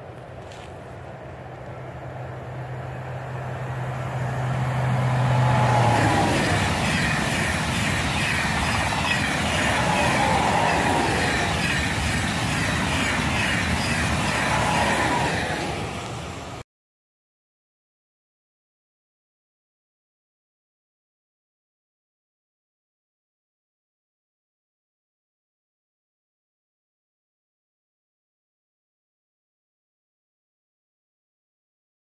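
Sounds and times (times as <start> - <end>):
high-speed train passing: 0.0 - 16.6.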